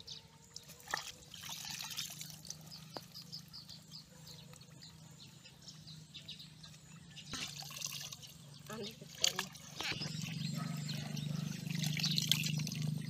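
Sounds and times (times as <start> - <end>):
water trickling: 0.4 - 3.4, 7.4 - 13.0
small bird chirping: 2.4 - 13.0.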